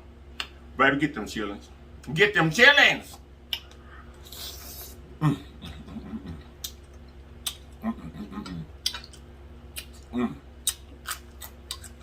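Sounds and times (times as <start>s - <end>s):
man chewing with lip smacks: 3.1s - 5.0s, 5.6s - 12.0s
man humming moans: 5.1s - 6.5s, 7.7s - 8.8s, 10.1s - 10.5s.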